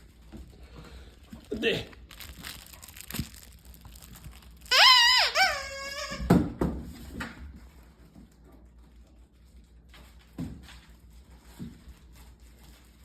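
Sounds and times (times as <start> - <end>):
dog squeaky toy squeaking: 4.6 - 6.3.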